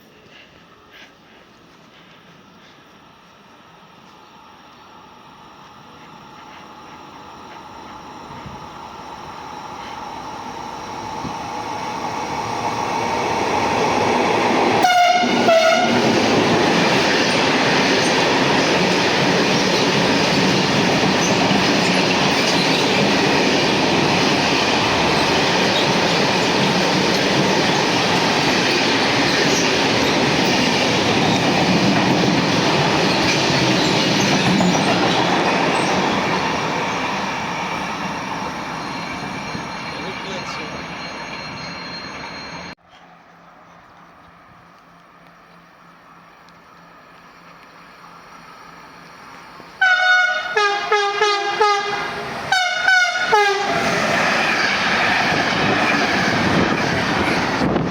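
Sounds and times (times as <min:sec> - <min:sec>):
train wheels rushing on rails: 0:05.9 - 0:42.8, 0:43.6 - 0:57.9
train horn blasts: 0:14.8 - 0:16.2, 0:49.8 - 0:53.9.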